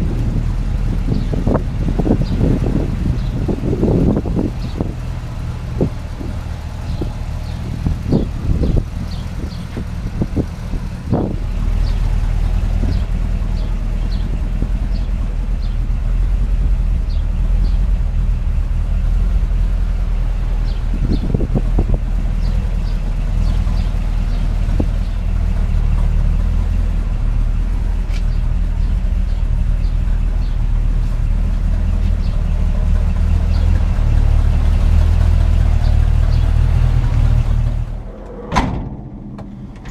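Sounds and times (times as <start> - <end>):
pickup truck engine running: 0.0 - 39.9
knocks: 38.3 - 39.9.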